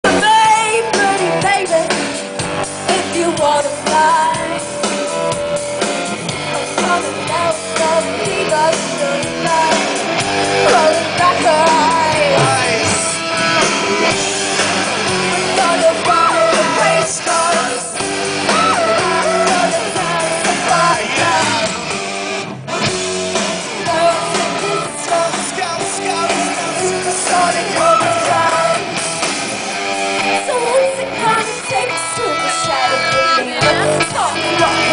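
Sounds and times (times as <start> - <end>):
rock band playing live: 0.0 - 34.9
person singing: 6.5 - 21.8, 23.7 - 28.9.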